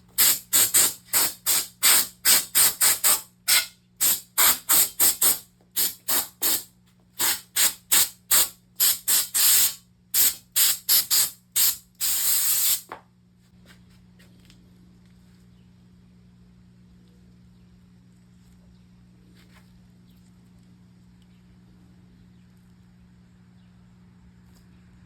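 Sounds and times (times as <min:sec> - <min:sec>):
aerosol spray can hissing: 0:00.2 - 0:12.9
faint low hum: 0:13.1 - 0:25.0.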